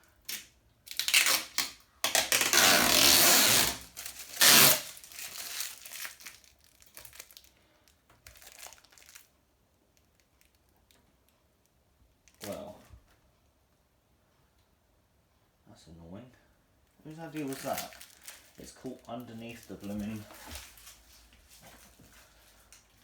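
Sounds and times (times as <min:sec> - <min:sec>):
plastic film crinkling and tearing: 0:00.3 - 0:09.4, 0:10.0 - 0:11.0, 0:12.3 - 0:12.7, 0:17.1 - 0:22.0.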